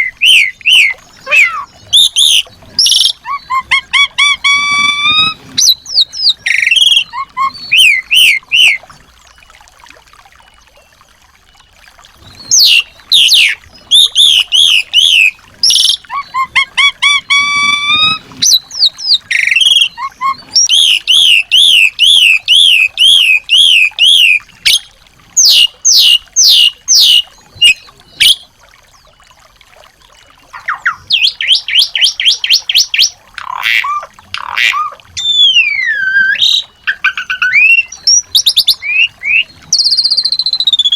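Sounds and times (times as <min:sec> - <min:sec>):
songbird singing trills and whistles: 0:00.0 - 0:08.8, 0:12.3 - 0:28.5, 0:30.5 - 0:40.9.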